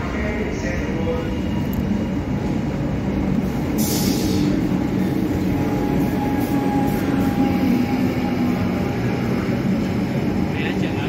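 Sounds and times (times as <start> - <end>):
electric train rumbling: 0.0 - 11.0
air hiss: 3.8 - 4.6.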